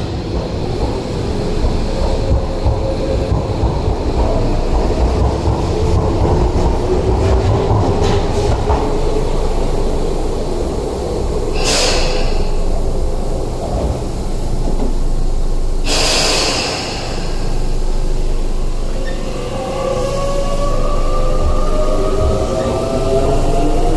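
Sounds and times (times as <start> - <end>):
electric train moving: 0.0 - 23.9
short hisses: 11.6 - 12.5, 15.9 - 17.3.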